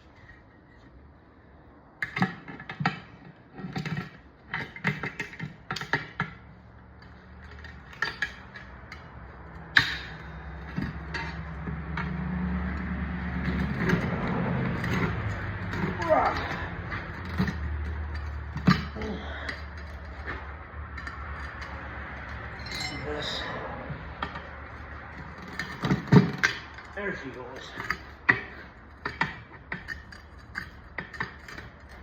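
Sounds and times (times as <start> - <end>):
metal tool clicks and clanks: 7.0 - 23.6, 24.2 - 32.0.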